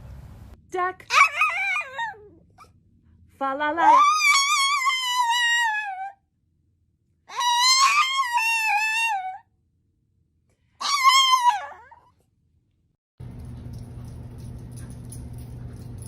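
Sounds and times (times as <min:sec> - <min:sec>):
pet howling: 0:01.1 - 0:02.7, 0:03.8 - 0:06.2, 0:07.3 - 0:09.5, 0:10.8 - 0:12.2.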